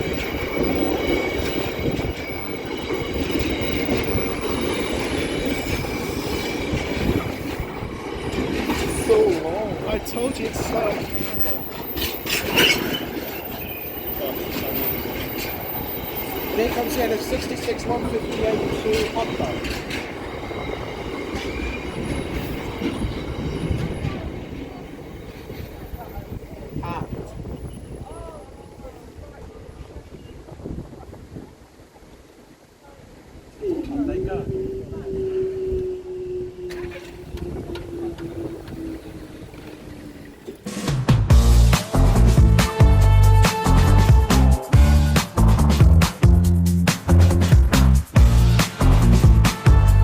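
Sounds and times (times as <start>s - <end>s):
high wheel squeal: 0.0s - 26.6s
wagon wheels clattering on rail joints: 0.0s - 28.1s, 36.7s - 40.9s
train rumbling: 0.0s - 50.0s.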